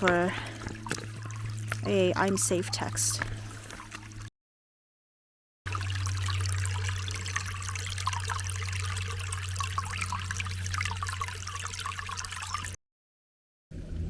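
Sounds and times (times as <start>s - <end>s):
steady low hum: 0.0s - 4.3s
stream trickling over rocks: 0.0s - 4.3s, 5.7s - 12.8s.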